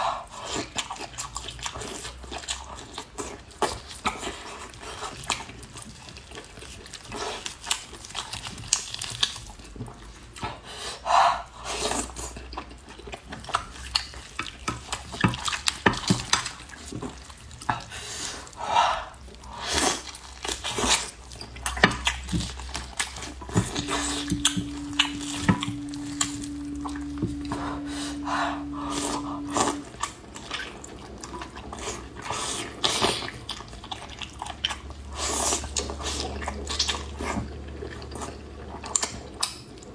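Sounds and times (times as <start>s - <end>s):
steady low hum: 23.2s - 37.9s.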